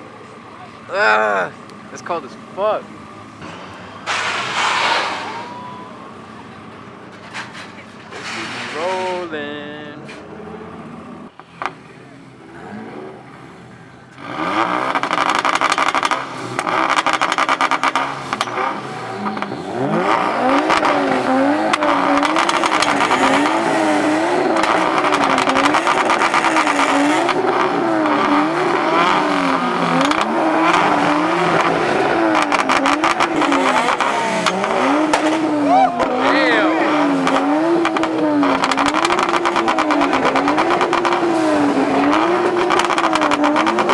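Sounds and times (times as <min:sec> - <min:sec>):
car engine revving hard: 0:12.4 - 0:43.9.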